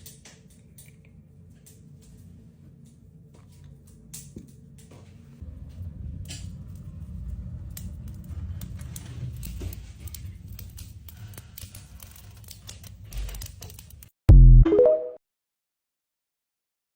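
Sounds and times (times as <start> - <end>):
steady low rumble: 5.3 - 11.2.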